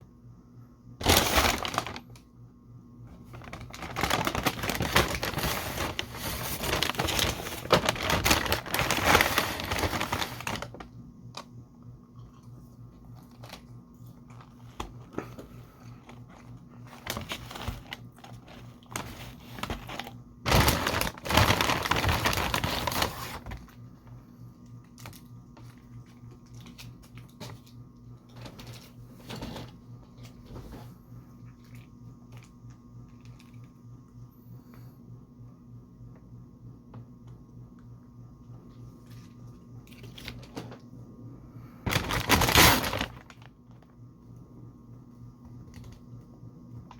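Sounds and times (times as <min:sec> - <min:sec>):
faint steady hum: 0:00.0 - 0:46.9
food packaging crinkling: 0:01.0 - 0:02.3, 0:03.1 - 0:11.5, 0:13.0 - 0:23.8, 0:24.8 - 0:30.8, 0:39.0 - 0:40.8, 0:41.9 - 0:44.0.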